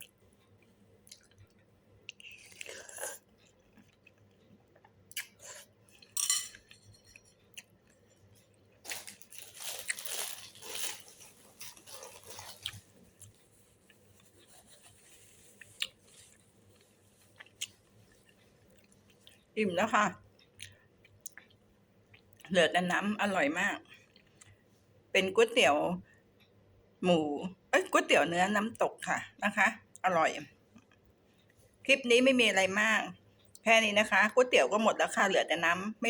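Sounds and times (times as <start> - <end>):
person chewing food: 0.0 - 19.6, 20.4 - 22.5.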